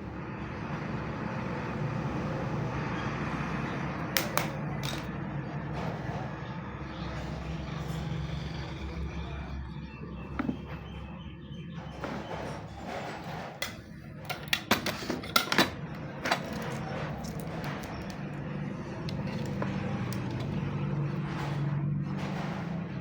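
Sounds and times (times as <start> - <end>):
sharp clicks and taps from tools: 4.0 - 5.1, 19.0 - 20.6.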